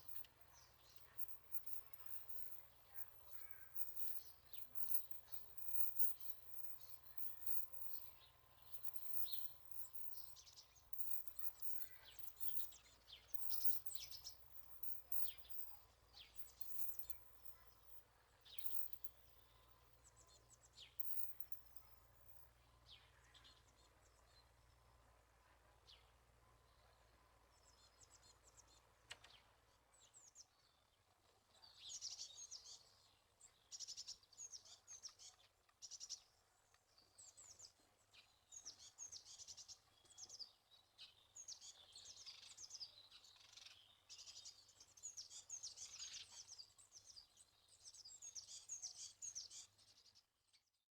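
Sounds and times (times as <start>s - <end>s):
songbirds twittering: 0.0s - 22.4s.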